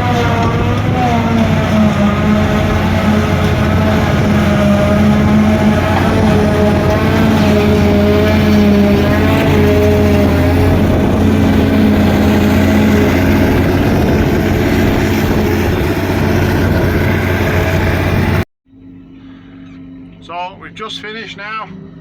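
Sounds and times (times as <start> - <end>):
harvester engine droning: 0.0 - 22.0.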